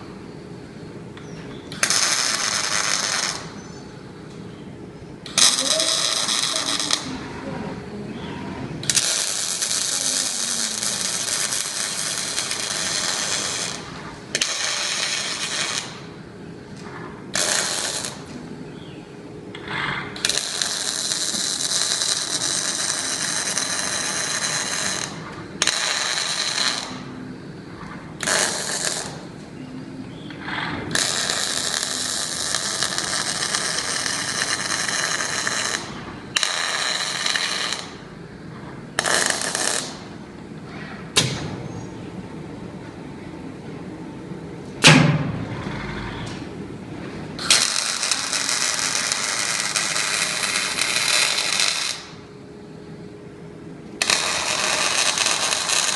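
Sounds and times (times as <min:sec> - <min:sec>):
welding arc crackling and hissing: 0:01.7 - 0:03.8, 0:05.2 - 0:07.5, 0:08.8 - 0:29.6, 0:30.4 - 0:40.2, 0:47.3 - 0:52.3, 0:54.0 - 0:55.9.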